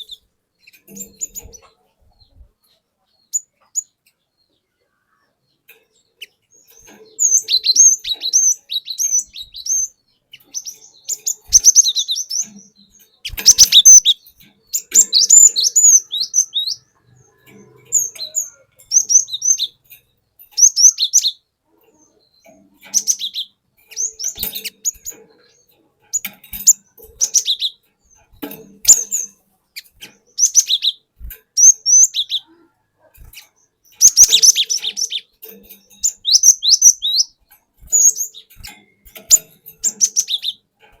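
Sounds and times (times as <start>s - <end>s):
bird singing whistled notes: 6.2s - 19.9s, 20.5s - 21.5s, 22.2s - 28.2s, 28.8s - 31.0s, 31.6s - 32.5s, 33.9s - 40.7s.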